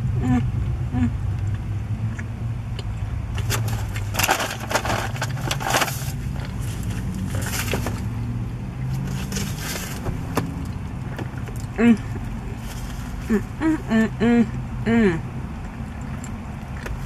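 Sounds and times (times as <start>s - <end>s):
steady low car hum: 0.0s - 17.0s
crunching and crinkling: 3.3s - 13.5s
chewing food: 15.5s - 17.0s.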